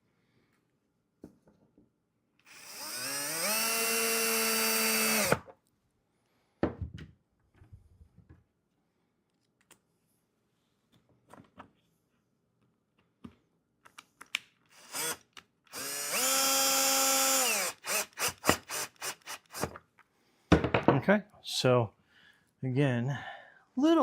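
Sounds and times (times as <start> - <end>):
power drill whining: 2.4 - 5.5, 14.7 - 19.8.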